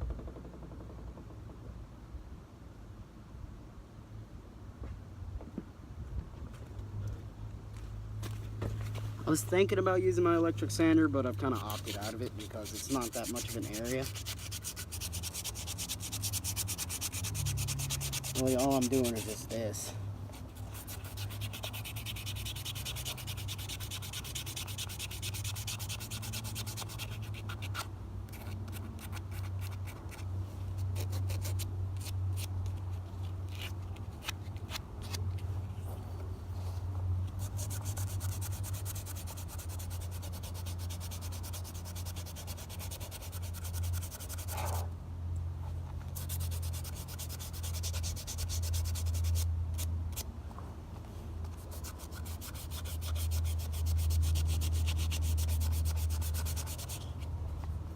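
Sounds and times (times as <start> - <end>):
hand sanding metal: 10.8 - 30.2, 37.4 - 44.8, 46.2 - 50.2, 51.5 - 57.2.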